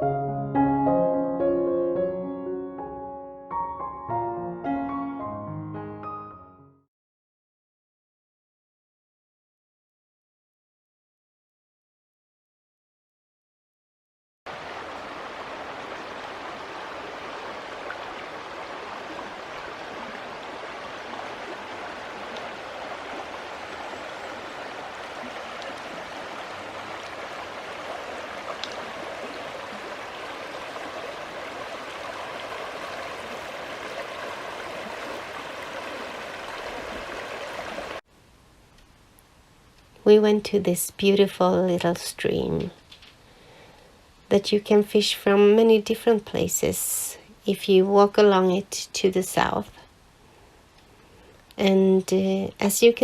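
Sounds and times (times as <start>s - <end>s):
small stream flowing: 14.5s - 38.0s.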